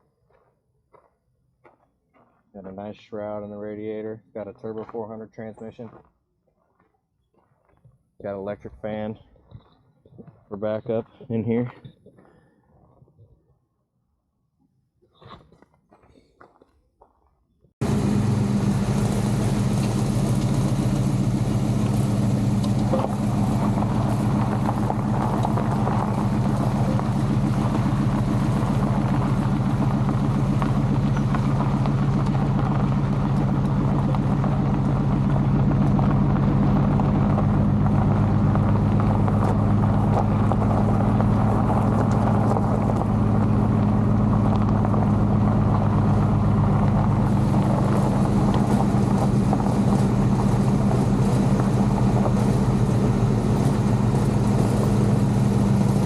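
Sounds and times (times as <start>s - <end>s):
car engine deep drone: 17.8s - 56.0s.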